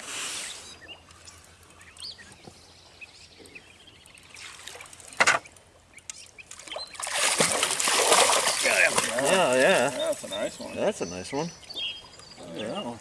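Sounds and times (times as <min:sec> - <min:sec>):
fish splashing in water: 0:06.6 - 0:10.3.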